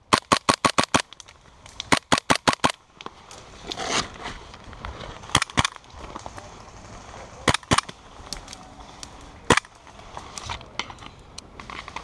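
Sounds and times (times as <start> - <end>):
airsoft gun shots: 0.1 - 1.0, 1.9 - 2.8, 7.4 - 7.9.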